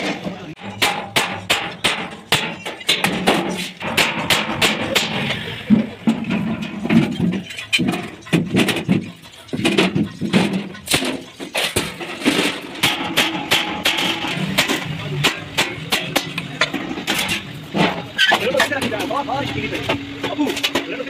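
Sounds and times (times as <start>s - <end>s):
hammer blows on sheet metal: 0.0s - 6.4s.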